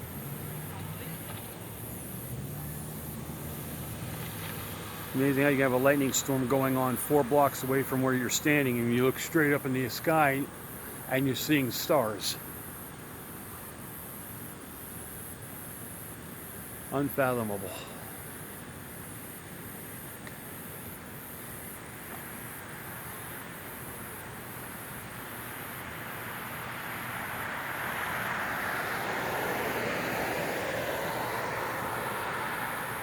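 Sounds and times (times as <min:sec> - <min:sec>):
passing vehicle rushing: 0:00.0 - 0:12.4, 0:25.8 - 0:33.0.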